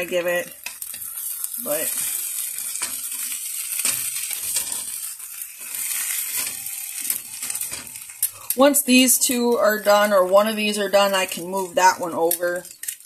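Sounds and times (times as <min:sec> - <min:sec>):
meat slices sizzling in pan: 0:00.0 - 0:13.0
metal tongs clicking: 0:12.3 - 0:13.0.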